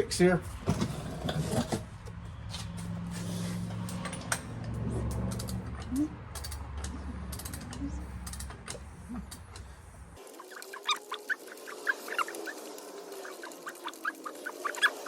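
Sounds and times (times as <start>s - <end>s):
hand tools clicking and creaking: 3.6s - 15.0s.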